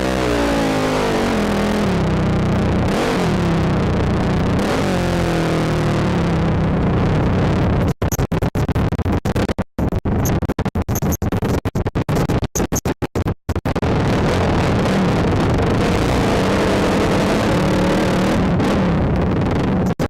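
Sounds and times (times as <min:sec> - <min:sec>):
all-terrain vehicle engine running hard: 0:00.0 - 0:07.4, 0:14.1 - 0:19.2.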